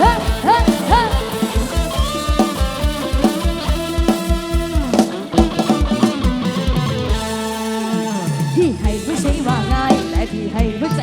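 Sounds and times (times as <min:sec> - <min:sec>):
fast kick-drum beat: 0:00.0 - 0:11.0.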